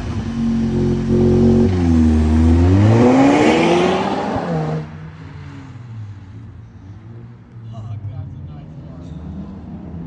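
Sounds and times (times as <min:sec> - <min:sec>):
loud car exhaust revving: 0:00.0 - 0:04.9.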